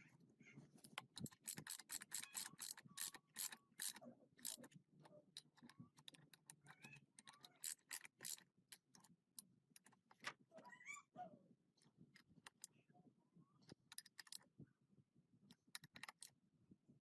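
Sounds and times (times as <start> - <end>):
sharp mechanical clicks: 0.9 - 4.7.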